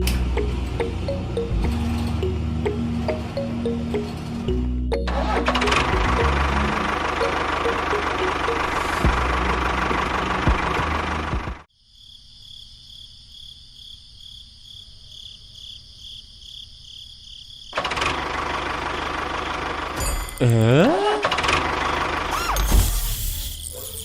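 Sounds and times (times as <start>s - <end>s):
small engine running roughly: 5.1s - 11.7s, 17.8s - 20.2s, 21.2s - 23.6s.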